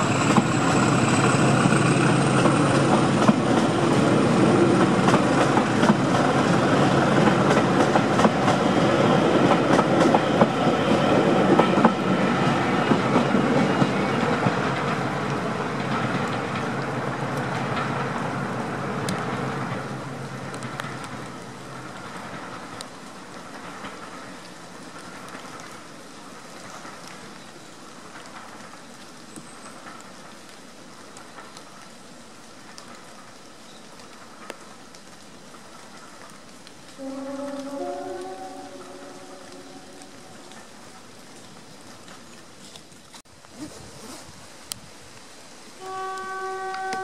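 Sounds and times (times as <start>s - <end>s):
diesel train rumble: 0.0s - 25.6s
faint steady hiss: 0.0s - 47.0s.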